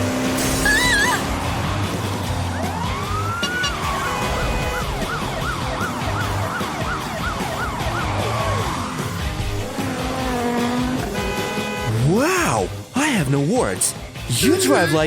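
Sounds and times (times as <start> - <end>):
car engine: 0.0 - 12.9
music: 0.0 - 15.0
emergency siren wailing and yelping: 0.6 - 1.3, 2.4 - 9.1.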